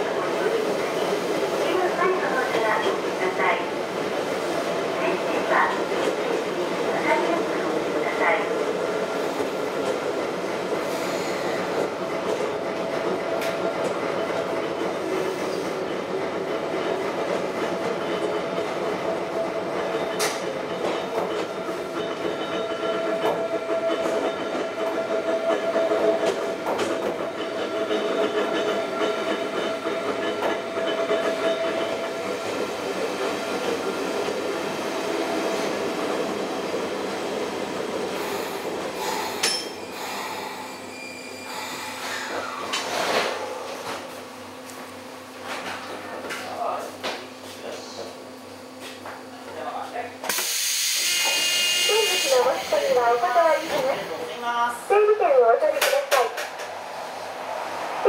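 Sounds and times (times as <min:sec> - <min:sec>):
railcar rumble: 0:00.0 - 0:49.6, 0:50.2 - 0:58.0
wheels clacking on track: 0:19.7 - 0:34.4, 0:55.7 - 0:56.8.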